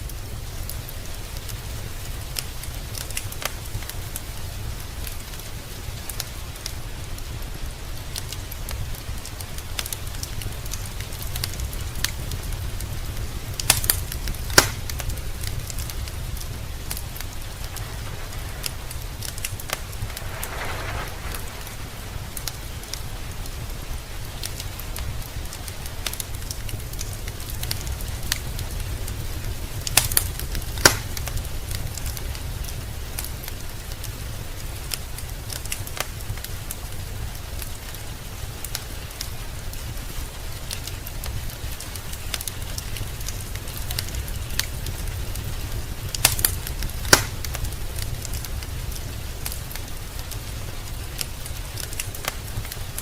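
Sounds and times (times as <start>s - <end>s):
rain hiss: 0.0s - 53.0s
wood fire crackling: 0.0s - 53.0s
sharp pops: 13.6s - 15.0s, 46.2s - 47.6s
low rumble: 16.1s - 24.2s.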